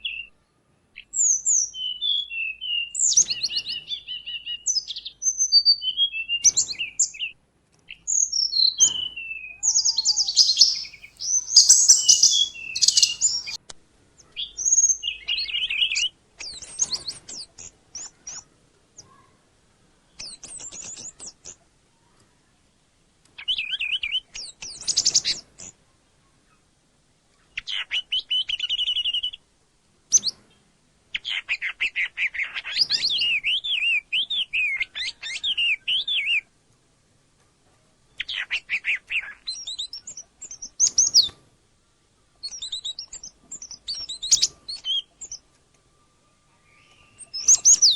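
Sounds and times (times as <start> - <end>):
songbirds singing: 9.6 - 13.6, 39.5 - 41.3, 42.4 - 45.5, 46.6 - 47.9.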